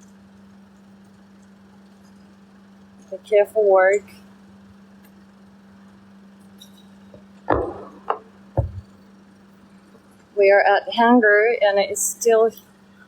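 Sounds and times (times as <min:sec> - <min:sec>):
sharp knocks: 0:07.2 - 0:09.0
low hum: 0:07.2 - 0:09.1
scuffing thump: 0:07.5 - 0:08.9.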